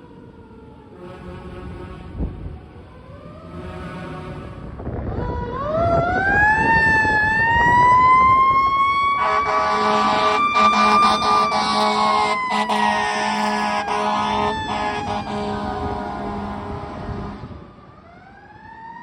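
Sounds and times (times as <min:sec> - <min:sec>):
truck engine rumbling: 0:00.0 - 0:18.3
air horn blasts: 0:01.0 - 0:05.0, 0:09.1 - 0:17.7
fire engine siren winding: 0:05.2 - 0:16.7.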